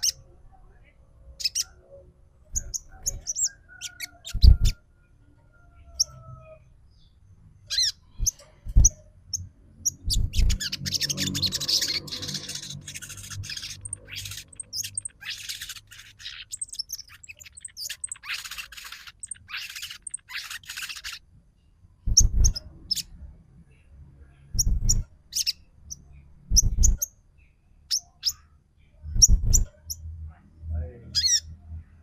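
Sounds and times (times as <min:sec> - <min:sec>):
sunbird rapid chattering song: 0:02.6 - 0:04.8, 0:07.7 - 0:21.2
sharp high bird chips: 0:09.9 - 0:21.2.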